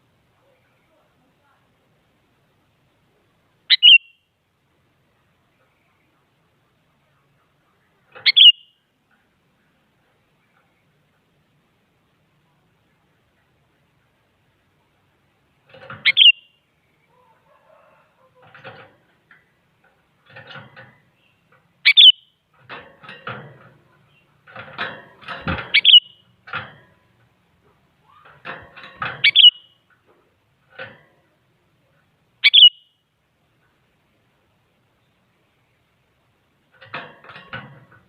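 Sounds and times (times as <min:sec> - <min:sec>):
faint scratchy sounds: 0:00.0 - 0:32.5
bird calling bright notes: 0:03.7 - 0:04.2, 0:08.2 - 0:08.8, 0:16.0 - 0:16.6, 0:21.8 - 0:22.4, 0:25.8 - 0:26.2, 0:29.2 - 0:29.8, 0:32.4 - 0:32.9.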